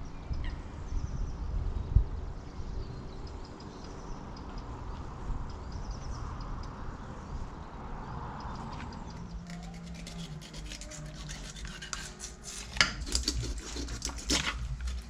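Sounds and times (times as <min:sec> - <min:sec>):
wind rumble on microphone: 0:00.0 - 0:11.4.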